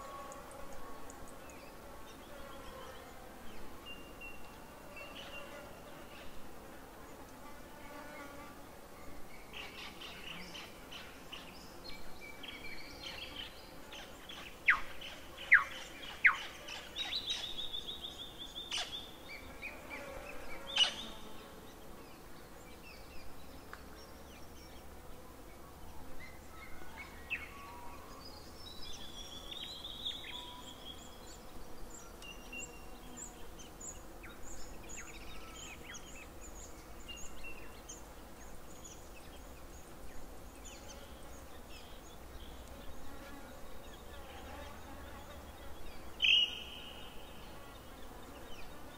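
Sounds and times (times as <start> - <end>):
birds chirping and singing: 26.2 - 48.9.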